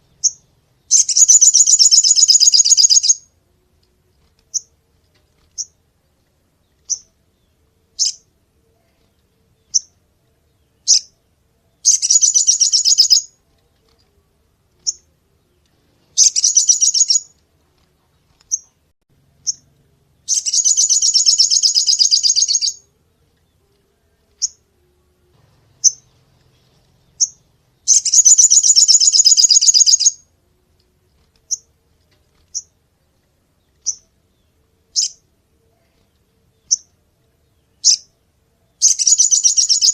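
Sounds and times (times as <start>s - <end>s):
bird trill: 0.0s - 3.3s, 6.8s - 8.3s, 9.6s - 10.0s, 10.6s - 13.4s, 14.8s - 15.1s, 16.1s - 17.4s, 18.5s - 24.7s, 25.7s - 30.3s, 33.7s - 37.0s, 37.6s - 39.9s
songbird calling: 0.0s - 3.3s, 6.7s - 10.0s, 10.6s - 11.2s, 11.8s - 13.4s, 14.8s - 17.4s, 19.4s - 24.8s, 25.6s - 30.3s, 33.6s - 39.9s.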